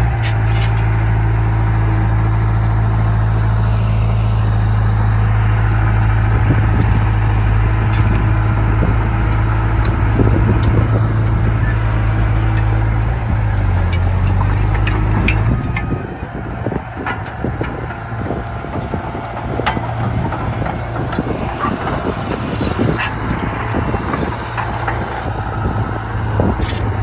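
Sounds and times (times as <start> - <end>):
bulldozer diesel engine running: 0.0 - 27.0
short rattles: 5.8 - 25.3.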